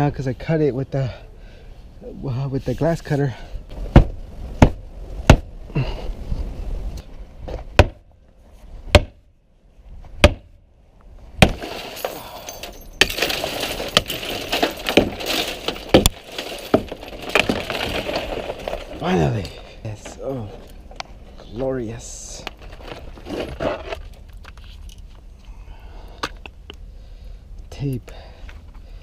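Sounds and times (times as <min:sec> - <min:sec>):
glass breaking: 0:11.4 - 0:19.0
glass crunching and clinking: 0:11.5 - 0:19.7.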